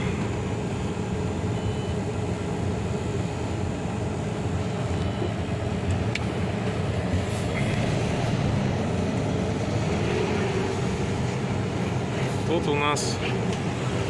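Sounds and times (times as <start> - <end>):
diesel truck engine: 0.0 - 14.0
road noise: 0.0 - 14.0.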